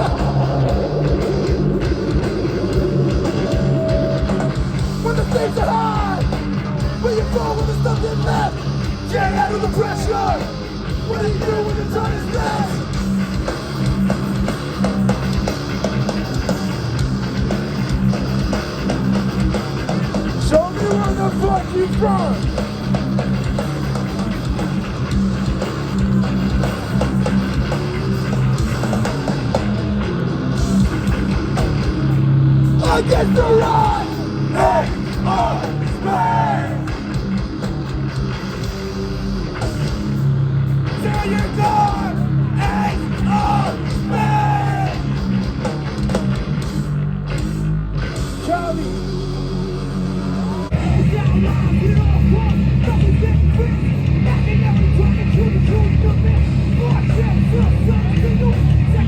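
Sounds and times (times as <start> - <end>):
bending high guitar notes: 0.0 - 5.1
bass guitar riffing: 0.0 - 59.0
distorted electric guitar riffing: 0.0 - 59.0
punk band playing loud: 0.0 - 59.0.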